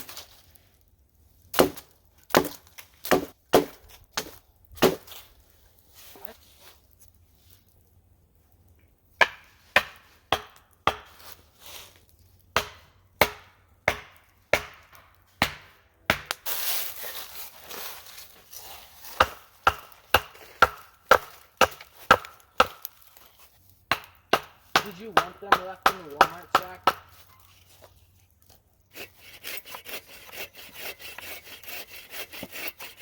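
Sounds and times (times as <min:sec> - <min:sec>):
blade chopping into wood: 0:01.5 - 0:05.1, 0:09.2 - 0:11.3, 0:12.6 - 0:16.4, 0:19.2 - 0:23.0, 0:23.9 - 0:27.2.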